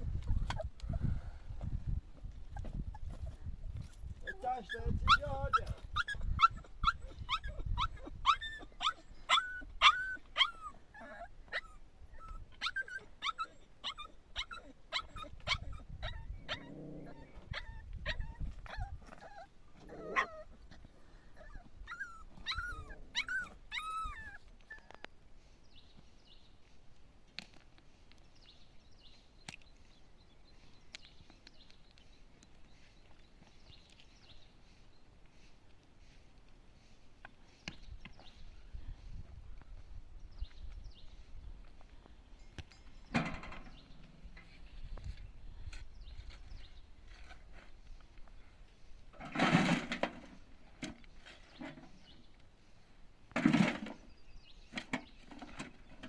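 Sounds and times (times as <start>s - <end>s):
dog yelping and whimpering: 0.0s - 1.0s, 2.4s - 25.1s.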